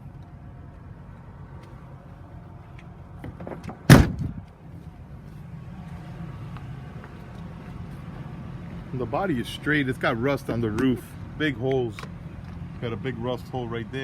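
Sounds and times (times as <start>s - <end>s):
truck door slamming: 3.2s - 4.4s.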